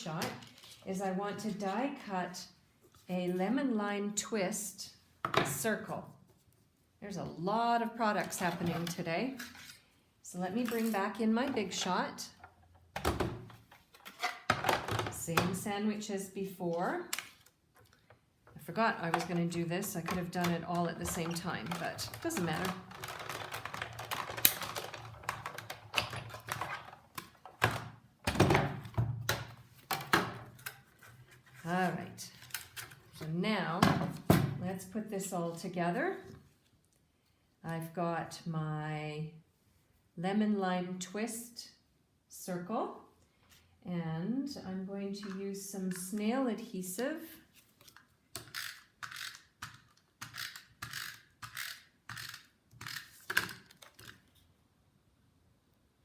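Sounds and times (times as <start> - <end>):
tape runner ratcheting strokes: 50.2 - 53.3.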